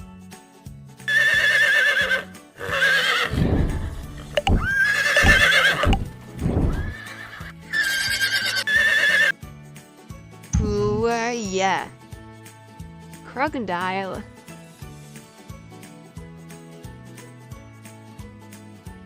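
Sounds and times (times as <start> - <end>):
light background tune: 0.0 - 19.0
hoofbeats: 1.1 - 9.4
horse whinnying: 1.1 - 9.4.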